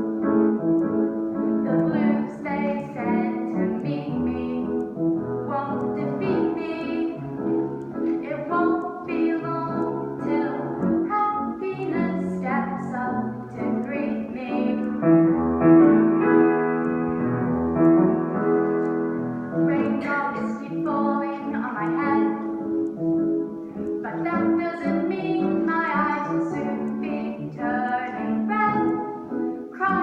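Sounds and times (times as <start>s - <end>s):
held melody line: 0.0s - 30.0s
piano music: 0.0s - 30.0s.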